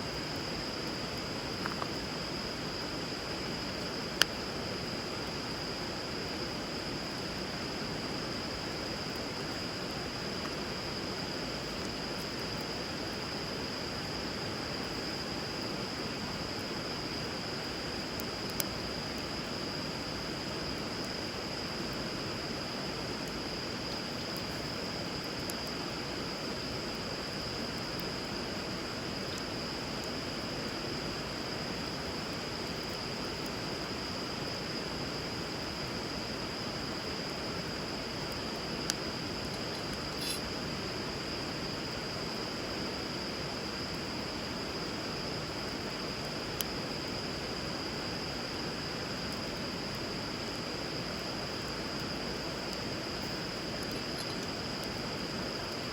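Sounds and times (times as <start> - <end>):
wood fire crackling: 6.4 - 34.8, 50.5 - 55.8.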